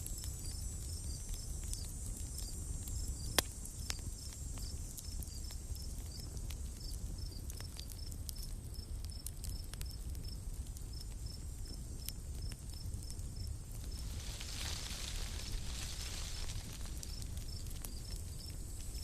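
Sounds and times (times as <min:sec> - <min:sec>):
high insect chirping: 0:00.0 - 0:07.4, 0:11.0 - 0:19.0
campfire crackling: 0:00.0 - 0:19.0
steady low rumble: 0:11.8 - 0:19.0.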